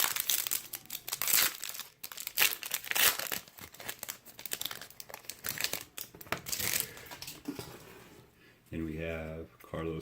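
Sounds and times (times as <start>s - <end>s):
card pack wrapper crinkling and tearing: 0.0s - 7.4s.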